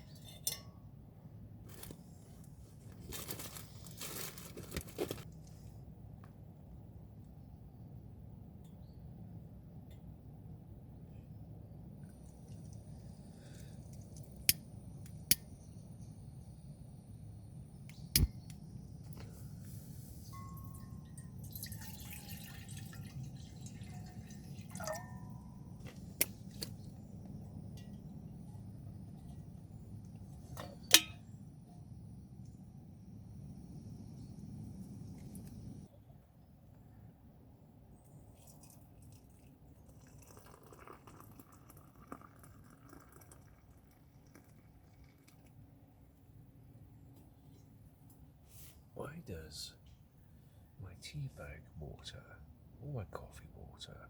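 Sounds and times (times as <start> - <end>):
water dripping and trickling: 20.3 - 25.2, 38.4 - 45.6.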